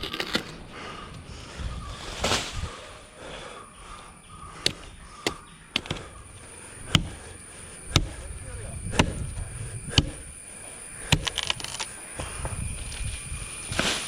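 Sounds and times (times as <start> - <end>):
sharp knocks and clicks: 4.6 - 6.1, 6.9 - 7.2.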